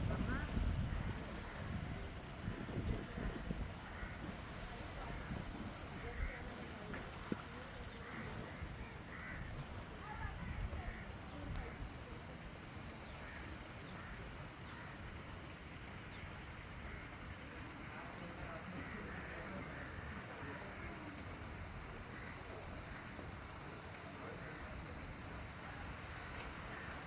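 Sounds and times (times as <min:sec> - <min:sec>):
background hiss and rumble: 0:00.0 - 0:27.0
small birds chirping: 0:00.1 - 0:12.0.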